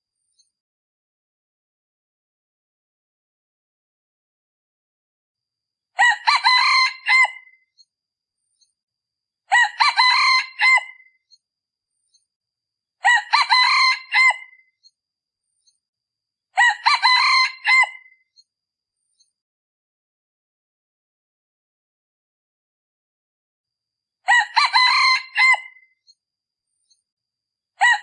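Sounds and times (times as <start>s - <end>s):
junglefowl crowing: 6.0s - 7.6s, 9.5s - 11.1s, 13.0s - 14.6s, 16.6s - 18.2s, 24.3s - 25.8s, 27.8s - 28.0s.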